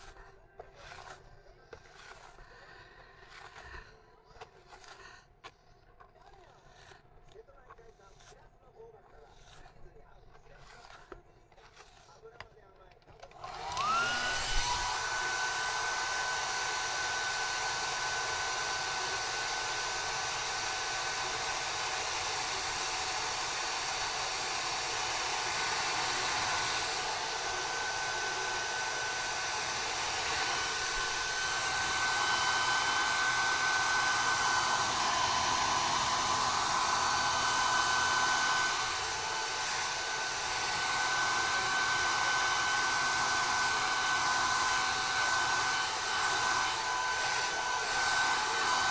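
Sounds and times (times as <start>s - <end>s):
hair dryer running: 0.0s - 0.2s, 13.2s - 48.9s.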